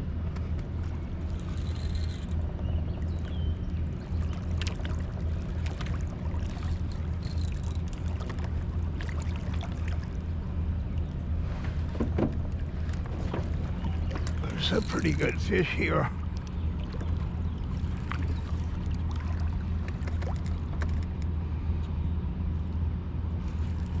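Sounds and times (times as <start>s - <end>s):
water noise: 0.0s - 21.4s
boat motor humming: 0.0s - 22.4s, 23.3s - 24.0s
faint clicks: 1.3s - 2.4s.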